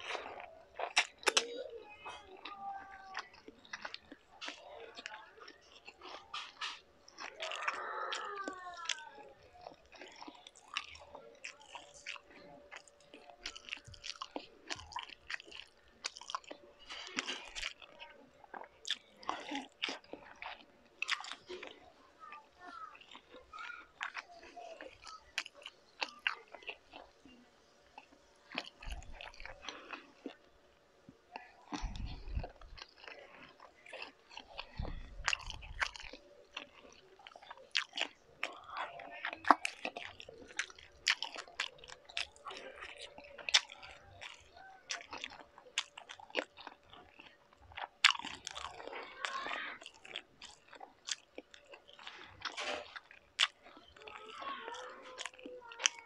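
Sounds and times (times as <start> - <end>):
mouth smacks and clicks: 0.0 - 1.6, 31.3 - 54.2
person chewing food: 0.0 - 56.0.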